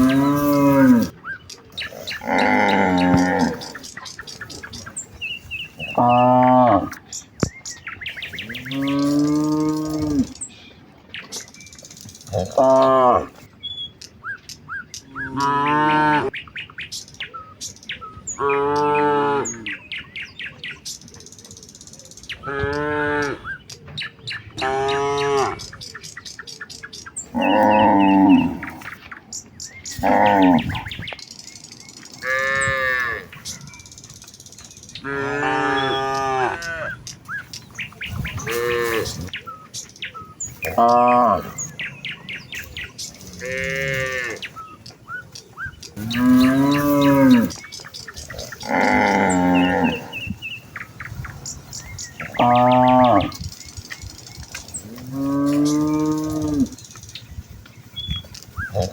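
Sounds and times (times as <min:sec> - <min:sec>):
cattle mooing: 0:00.0 - 0:01.1, 0:01.8 - 0:03.9, 0:05.7 - 0:07.0, 0:08.3 - 0:10.4, 0:12.3 - 0:13.4, 0:27.3 - 0:28.9, 0:29.9 - 0:31.0, 0:35.0 - 0:37.0, 0:38.1 - 0:39.3, 0:40.5 - 0:42.0, 0:43.2 - 0:44.6, 0:46.0 - 0:47.6, 0:48.3 - 0:50.3, 0:52.2 - 0:53.4, 0:54.9 - 0:56.8.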